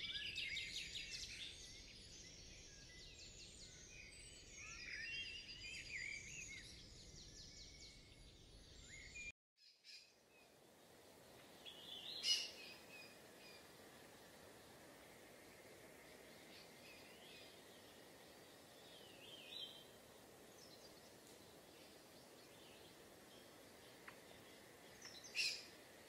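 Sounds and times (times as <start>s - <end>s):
soft outdoor hiss: 0.0s - 26.0s
birds chirping: 9.9s - 26.0s.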